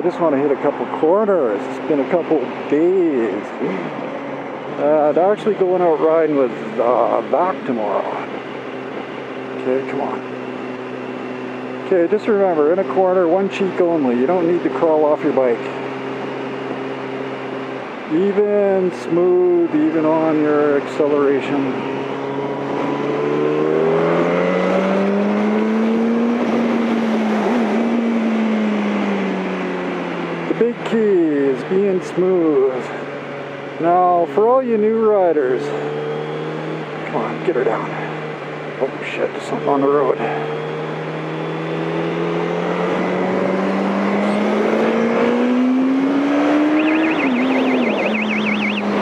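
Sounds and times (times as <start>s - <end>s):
motorcycle engine accelerating: 0.0s - 31.6s, 35.2s - 49.0s
fast warbling high tone: 46.6s - 49.0s.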